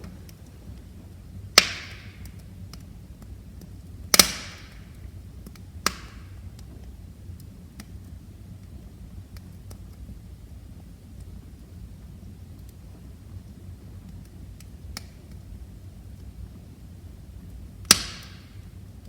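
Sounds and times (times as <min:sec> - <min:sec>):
low steady rumble: 0:00.0 - 0:04.1
loud fire pops: 0:00.0 - 0:08.1, 0:17.4 - 0:19.0
wood fire crackling: 0:00.0 - 0:19.0.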